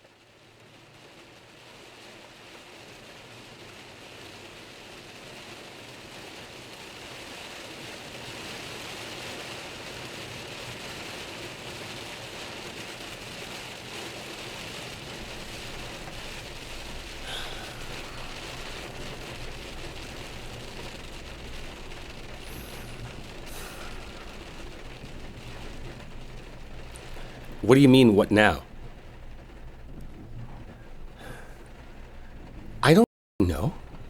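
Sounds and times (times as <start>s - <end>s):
steady rain: 0.0s - 34.0s
low rumble: 15.2s - 27.6s, 28.6s - 32.8s.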